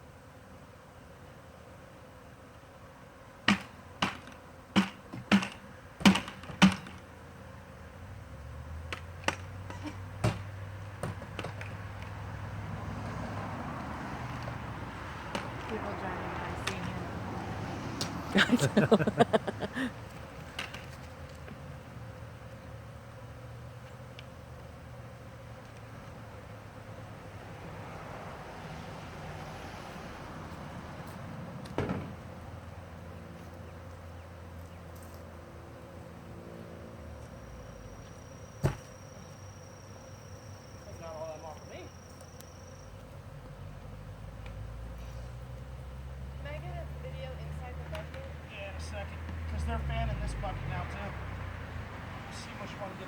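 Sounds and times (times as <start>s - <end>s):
bee swarm buzzing: 0.0s - 53.0s
sharp thump: 31.8s - 32.2s, 38.6s - 38.9s.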